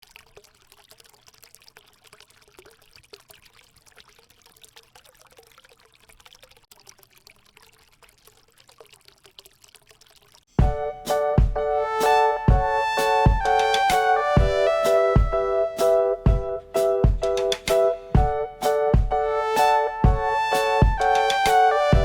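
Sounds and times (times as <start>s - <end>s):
small water splashes: 0.0s - 10.6s
fountain water trickling: 0.0s - 10.7s
music: 10.6s - 22.0s.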